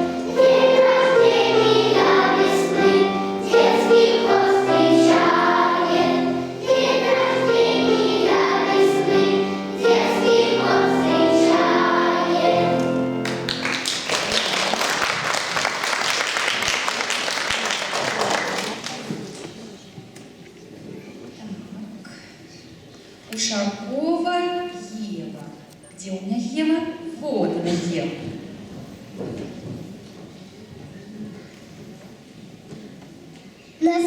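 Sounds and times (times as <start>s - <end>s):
children's choir singing: 0.0s - 19.4s
audience applauding: 13.2s - 19.6s.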